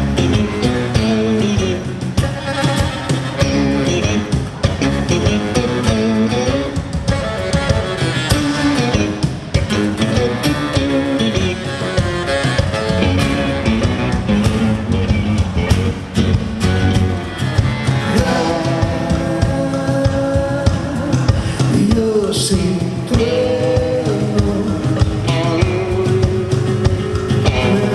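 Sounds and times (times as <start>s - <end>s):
drum hits: 0.0s - 27.9s
electric guitars: 0.0s - 27.9s.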